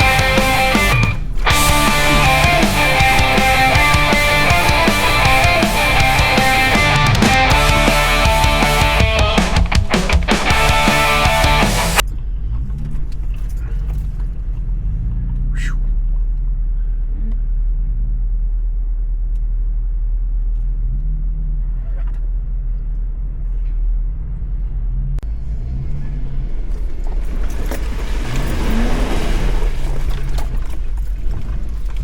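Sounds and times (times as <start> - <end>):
off-road vehicle engine revving: 0.0 - 13.3, 23.4 - 30.6.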